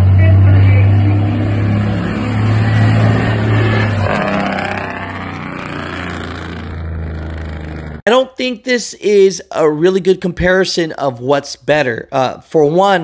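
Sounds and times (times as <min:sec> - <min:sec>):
trucks driving on road: 0:00.0 - 0:08.0.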